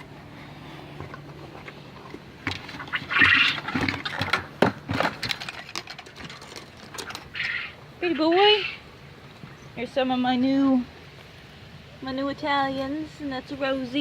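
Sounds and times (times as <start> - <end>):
game birds calling: 2.7 - 4.2, 6.9 - 9.7
harsh bird call: 7.3 - 8.8.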